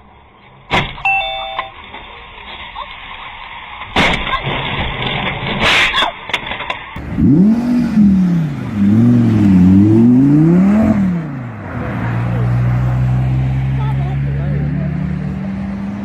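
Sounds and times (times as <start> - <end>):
car engine revving: 7.0 - 16.0.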